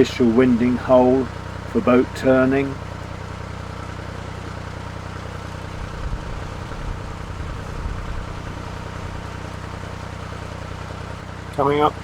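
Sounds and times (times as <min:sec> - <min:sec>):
boat engine running: 0:00.0 - 0:12.0
wind rumbling on microphone: 0:05.8 - 0:09.2.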